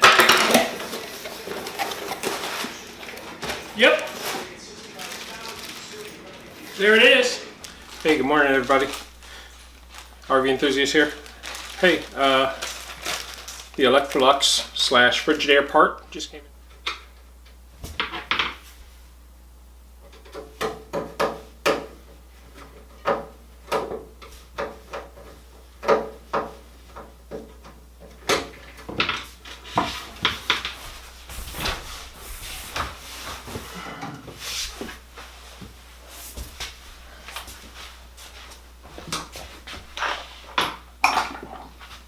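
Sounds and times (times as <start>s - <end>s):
rustling: 0.7s - 14.3s.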